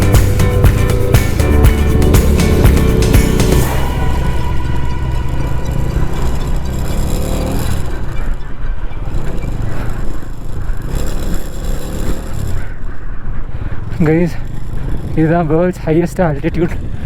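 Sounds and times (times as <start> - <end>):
motorcycle engine running: 0.0 - 8.1
road noise: 0.0 - 17.0.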